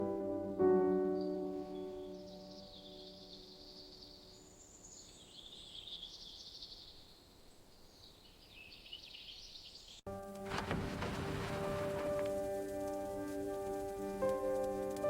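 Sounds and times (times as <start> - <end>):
soft piano piece: 0.0 - 4.8, 10.1 - 15.0
small birds chirping: 0.8 - 10.1
hissing rain-like noise: 10.2 - 15.0.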